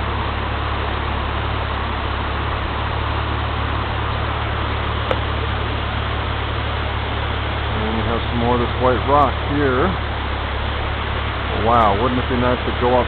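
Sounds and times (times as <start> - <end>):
waterfall and river rushing: 0.0 - 13.0.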